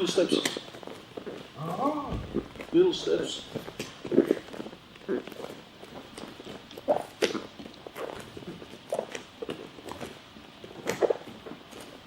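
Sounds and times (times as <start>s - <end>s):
hands and feet patting floor: 2.1s - 4.8s.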